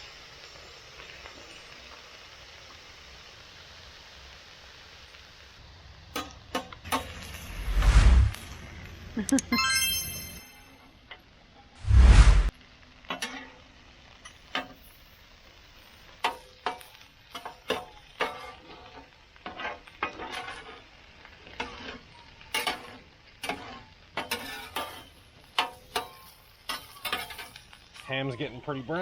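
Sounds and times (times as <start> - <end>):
ham sizzling on a griddle: 0.0 - 10.0, 10.8 - 29.0.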